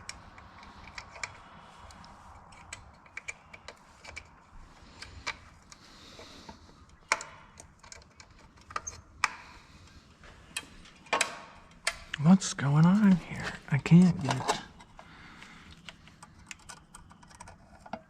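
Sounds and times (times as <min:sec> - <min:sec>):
clicks and taps on metal parts: 0:06.9 - 0:09.4.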